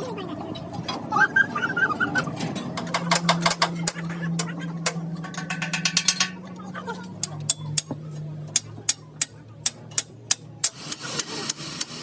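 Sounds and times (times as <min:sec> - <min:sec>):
low machine hum: 0:00.0 - 0:11.4
sharp metal knocks: 0:02.6 - 0:06.5.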